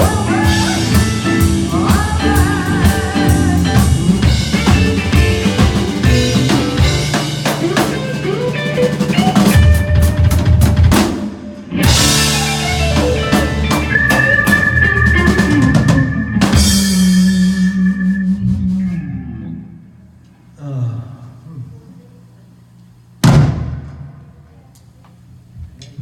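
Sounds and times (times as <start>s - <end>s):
drum kit fills: 0.0s - 19.3s, 23.2s - 24.5s
electric guitar: 0.0s - 20.1s
long held guitar note: 14.1s - 20.0s.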